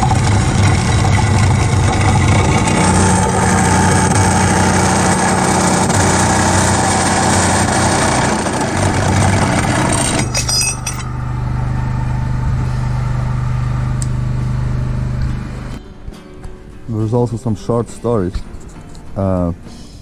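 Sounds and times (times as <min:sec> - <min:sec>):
steady low hum: 0:00.0 - 0:15.8
vehicle engine running: 0:00.0 - 0:15.8.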